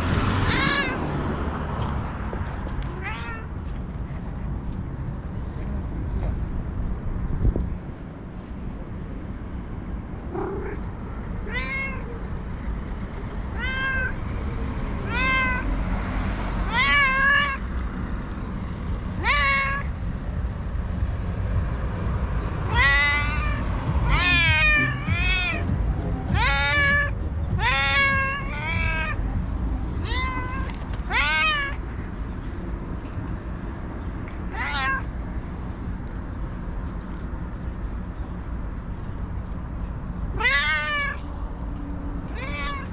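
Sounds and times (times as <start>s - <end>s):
cat meowing: 0.4s - 1.0s, 2.8s - 3.6s, 10.3s - 12.2s, 13.5s - 14.2s, 15.0s - 15.7s, 16.6s - 17.6s, 19.2s - 19.9s, 22.6s - 25.7s, 26.3s - 29.2s, 30.0s - 32.0s, 34.5s - 35.1s, 40.3s - 41.2s, 42.3s - 42.9s
steady low rumble: 16.9s - 40.4s.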